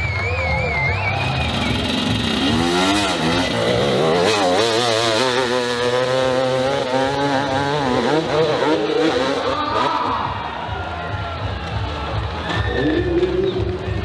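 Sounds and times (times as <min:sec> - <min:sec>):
dirt bike engine revving: 0:00.5 - 0:10.4.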